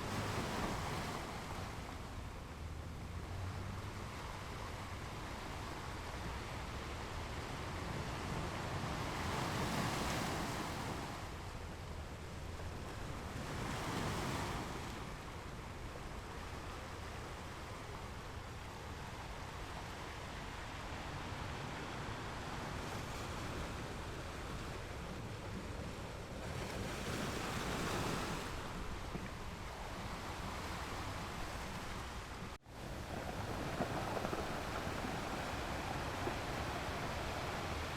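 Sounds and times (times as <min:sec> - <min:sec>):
ocean waves on shore: 0:00.0 - 0:37.9.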